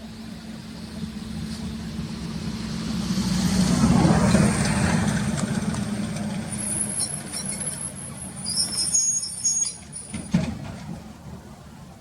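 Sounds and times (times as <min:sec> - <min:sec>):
truck engine rumble: 0:00.0 - 0:12.0
high thin squeaks: 0:06.7 - 0:10.2.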